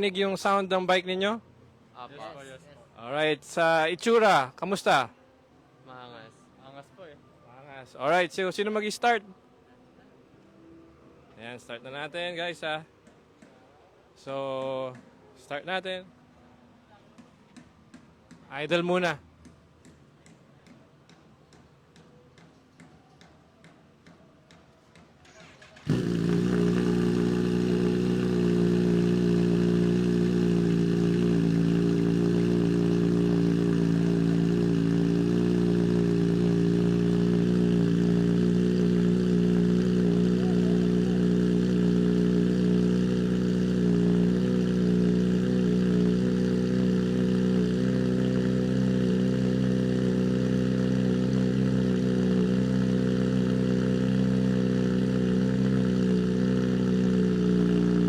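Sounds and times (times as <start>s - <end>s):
motorcycle engine idling: 24.9s - 58.0s.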